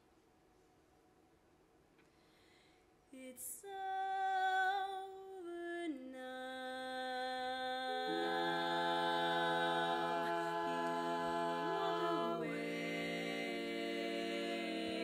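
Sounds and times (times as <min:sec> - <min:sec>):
women singing a cappella: 0:03.2 - 0:15.0.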